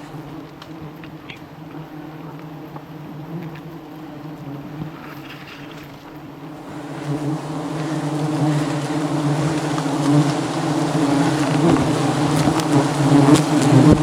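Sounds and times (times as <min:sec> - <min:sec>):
bees buzzing: 0:06.2 - 0:14.0.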